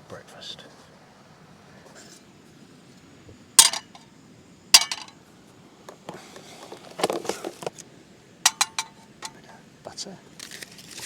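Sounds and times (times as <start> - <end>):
cookware knocking and rattling: 3.6 - 4.0, 4.8 - 5.2, 8.5 - 9.4
metal cookware clinking: 3.6 - 4.0, 4.8 - 5.2, 8.5 - 9.4.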